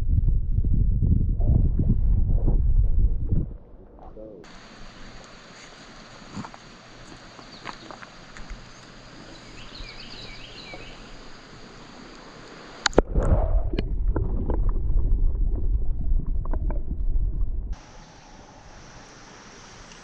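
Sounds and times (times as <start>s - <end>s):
loud low rumbling: 0.0s - 4.5s, 12.9s - 19.2s
faint chirps: 8.7s - 11.9s.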